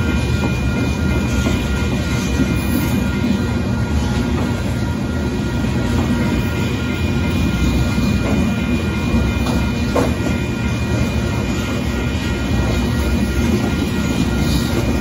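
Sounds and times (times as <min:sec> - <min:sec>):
steel wheels rumbling on rails: 0:00.0 - 0:15.0.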